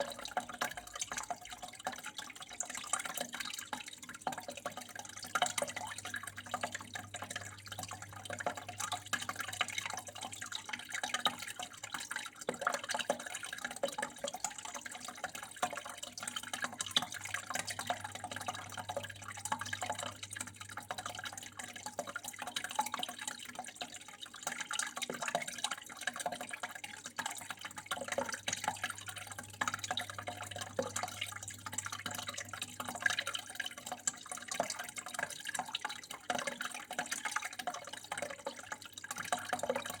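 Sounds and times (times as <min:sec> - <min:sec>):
water flowing and trickling: 0:00.0 - 0:40.0
low steady hum: 0:04.3 - 0:11.4, 0:15.2 - 0:22.4, 0:27.8 - 0:33.9.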